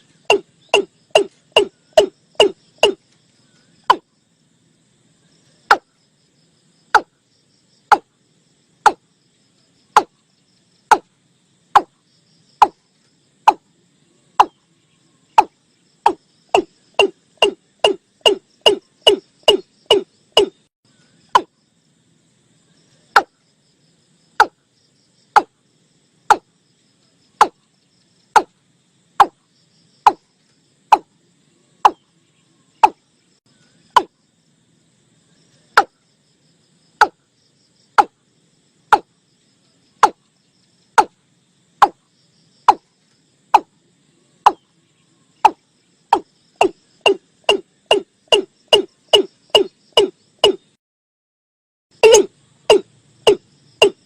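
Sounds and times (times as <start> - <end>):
bird calling with sharp notes: 0.0 - 4.1, 13.4 - 21.6, 31.8 - 33.0, 44.4 - 50.8, 52.0 - 54.0
faint insect trill: 0.0 - 50.8, 51.9 - 54.0.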